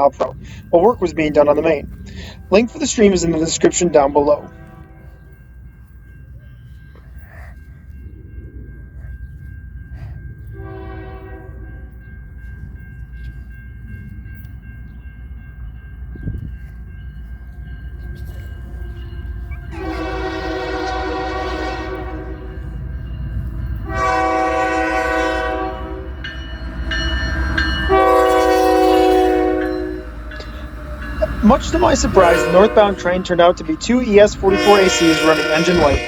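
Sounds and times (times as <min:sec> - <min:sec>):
locomotive engine rumble: 0:00.0 - 0:36.0
locomotive horn blasts: 0:10.6 - 0:11.6, 0:19.7 - 0:22.6, 0:23.8 - 0:26.2, 0:27.8 - 0:30.5, 0:31.2 - 0:36.0.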